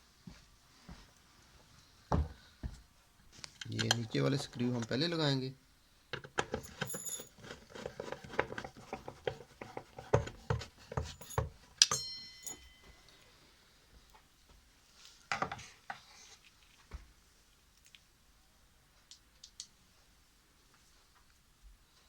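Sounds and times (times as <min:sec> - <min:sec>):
metal clicks and taps of screws: 0:03.4 - 0:05.0
short metallic ring: 0:11.2 - 0:13.3.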